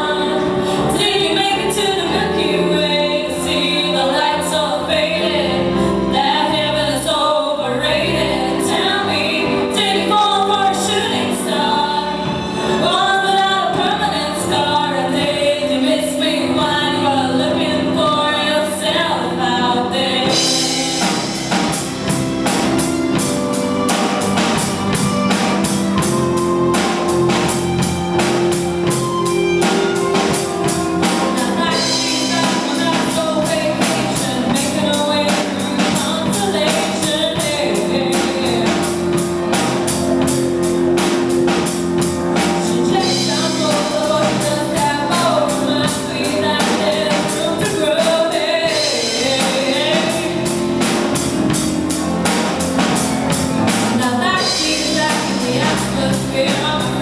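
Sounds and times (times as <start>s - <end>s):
women singing in duet: 0.0s - 21.6s, 30.3s - 40.2s, 42.3s - 51.6s, 53.9s - 57.0s
acoustic accompaniment: 0.0s - 57.0s
fast crisp rhythm: 20.0s - 57.0s.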